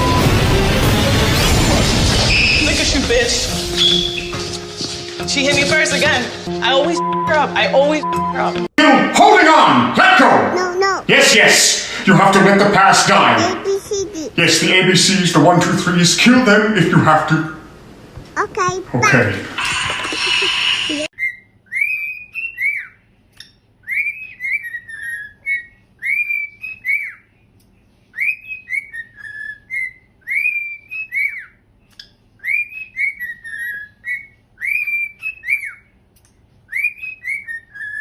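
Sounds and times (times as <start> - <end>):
pet bird whistling a tune: 3.8 - 4.4, 21.2 - 23.0, 23.8 - 27.3, 28.1 - 31.6, 32.4 - 35.9, 36.7 - 38.0.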